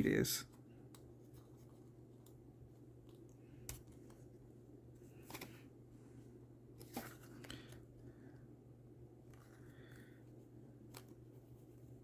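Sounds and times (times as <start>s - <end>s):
steady low hum: 0.0s - 12.0s
paper and card handled: 6.8s - 7.8s.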